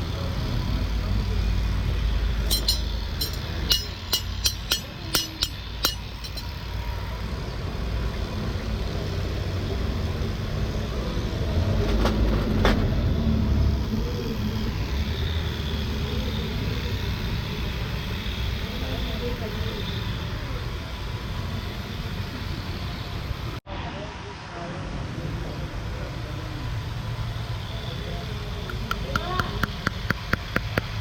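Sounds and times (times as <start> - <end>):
farrier's tools tapping hoof: 2.5 - 6.5, 28.7 - 31.0.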